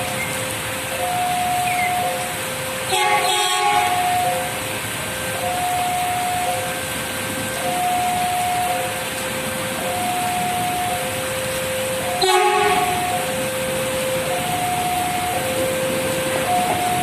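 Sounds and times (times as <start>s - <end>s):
heavy rain hissing: 0.0s - 17.0s
two-tone level crossing alarm: 0.0s - 17.0s
train horn blast: 2.9s - 4.3s, 12.2s - 13.5s.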